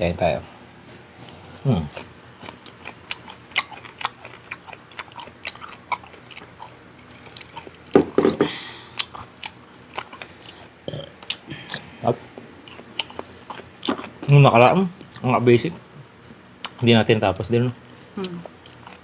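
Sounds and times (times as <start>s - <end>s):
chewing and biting food: 1.2s - 8.0s, 8.9s - 15.8s, 17.9s - 19.0s.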